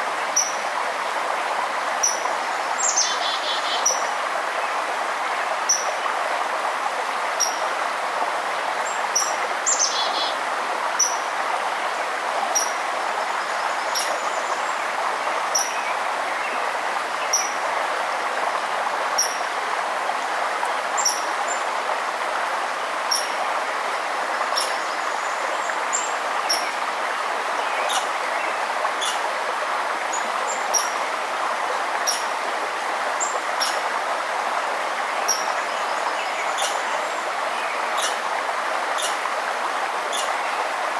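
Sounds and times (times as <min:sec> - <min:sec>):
river rushing: 0:00.0 - 0:40.9
bird chirping: 0:35.3 - 0:37.0, 0:38.0 - 0:38.2.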